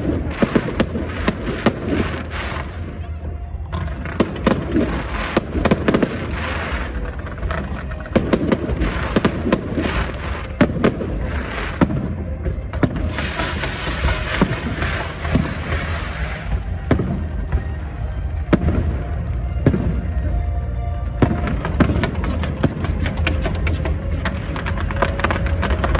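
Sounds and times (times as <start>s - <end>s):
crackling firework hiss: 0.0s - 3.1s, 3.8s - 18.4s.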